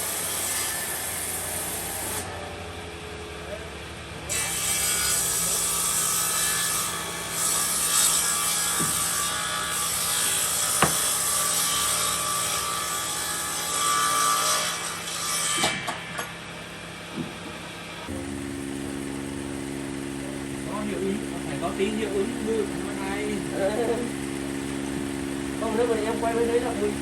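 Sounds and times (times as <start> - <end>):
saw cutting timber: 0.0 - 2.5, 4.2 - 17.3, 18.1 - 27.0
sharp knocks: 8.8 - 9.1, 10.8 - 11.2
machine hum: 16.8 - 27.0.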